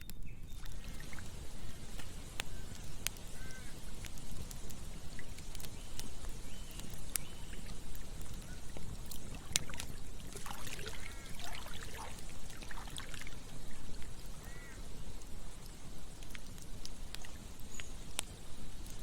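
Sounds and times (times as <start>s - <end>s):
campfire crackling and popping: 0.0s - 19.0s
stream water running: 0.5s - 19.0s
water gurgling: 0.6s - 2.2s, 7.5s - 14.7s.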